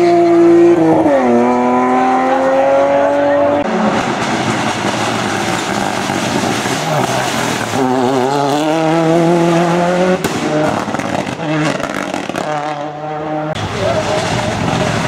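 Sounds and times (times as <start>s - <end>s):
race car engine revving: 0.0s - 15.0s
sharp crack: 10.2s - 12.6s.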